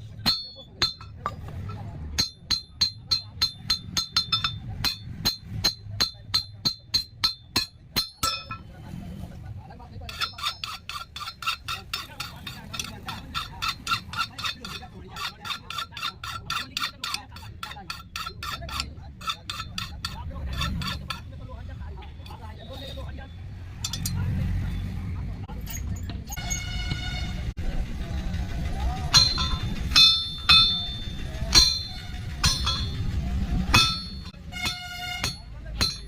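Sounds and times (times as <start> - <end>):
hammer striking steel on anvil: 0.1 - 8.7, 10.1 - 21.3, 23.8 - 24.2, 29.0 - 36.0.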